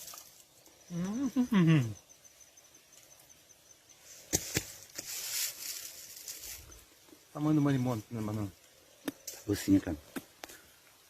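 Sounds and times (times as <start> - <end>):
rustling: 0.0 - 0.8, 4.0 - 7.0
pulsing high insect chirp: 0.0 - 11.0.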